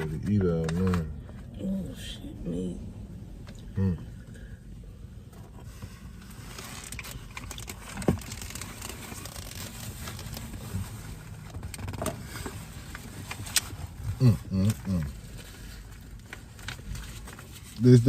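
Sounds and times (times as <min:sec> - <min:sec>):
low steady hum: 0:00.0 - 0:18.0
food packaging rustling: 0:06.2 - 0:13.9.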